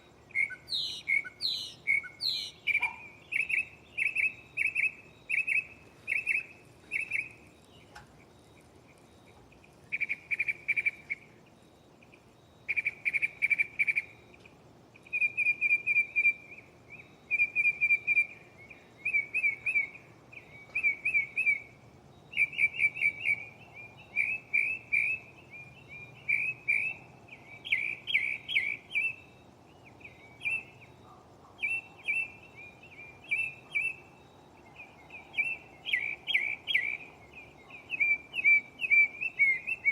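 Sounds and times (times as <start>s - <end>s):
mockingbird singing: 0.0s - 39.9s.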